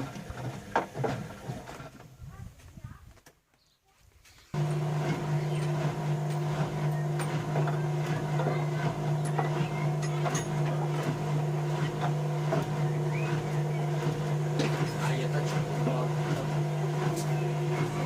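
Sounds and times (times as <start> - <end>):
washing machine humming: 4.6 - 18.0.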